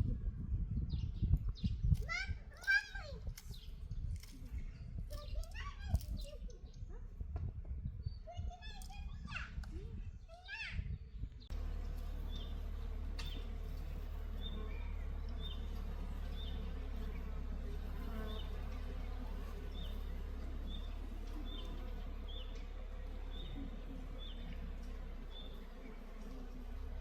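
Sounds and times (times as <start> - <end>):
steady low rumble: 11.4 - 27.0
insects buzzing: 11.5 - 27.0.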